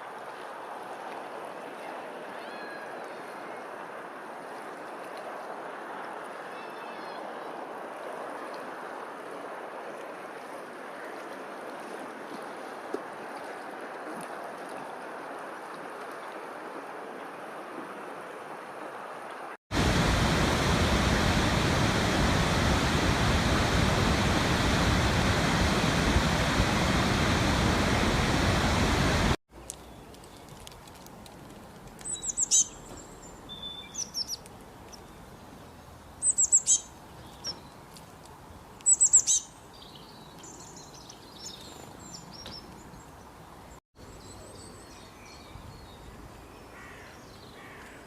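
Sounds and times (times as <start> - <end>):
running water rushing: 0.0 - 29.4
falling water roaring: 19.7 - 29.4.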